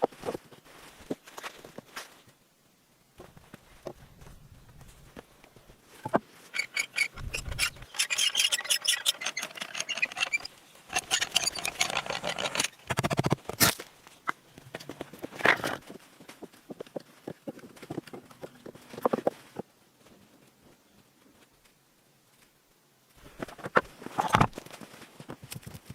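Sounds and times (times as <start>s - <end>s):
hand tool rasping on wood: 6.6s - 12.7s.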